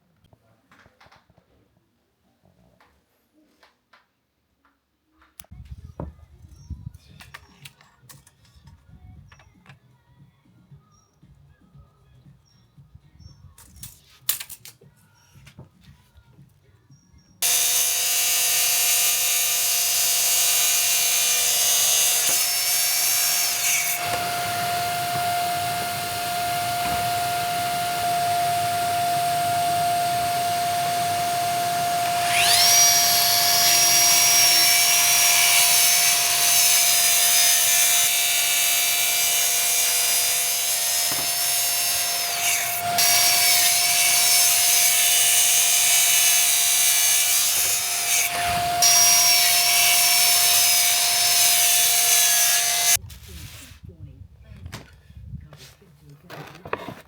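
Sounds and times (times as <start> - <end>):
track saw cutting wood: 17.4 - 53.0.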